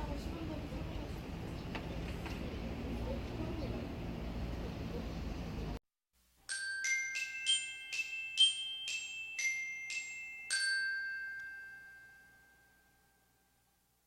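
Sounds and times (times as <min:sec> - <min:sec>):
bell-like mallet jingle: 0:06.4 - 0:13.8.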